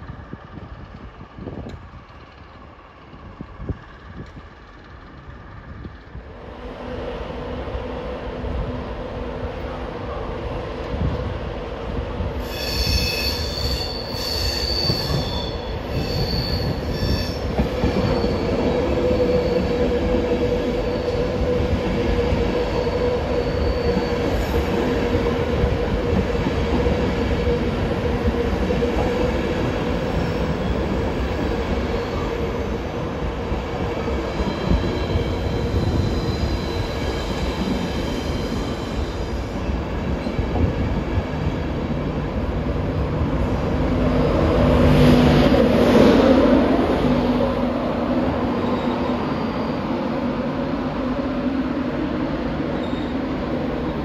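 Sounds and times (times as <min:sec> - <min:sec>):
train wheels rumbling on rail: 0:00.0 - 0:54.0
high-pitched wheel squeal: 0:12.4 - 0:20.0, 0:22.6 - 0:24.8, 0:48.6 - 0:50.2.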